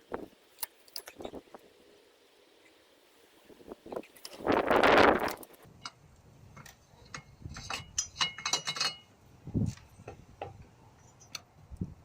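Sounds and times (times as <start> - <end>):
metal tools clinking: 7.6 - 9.1.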